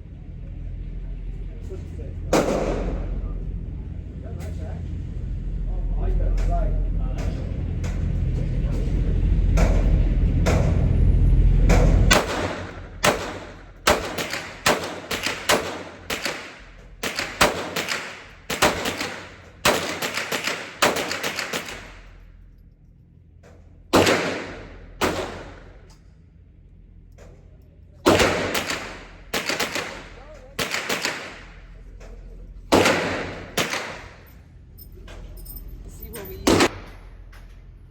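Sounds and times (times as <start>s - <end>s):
low steady rumble: 0.0s - 37.9s
handgun shots: 11.7s - 22.0s, 23.9s - 25.7s, 28.1s - 31.5s, 32.7s - 34.2s.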